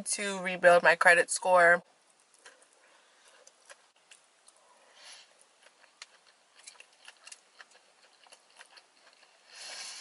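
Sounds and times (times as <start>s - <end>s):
person chewing food: 2.1s - 10.0s.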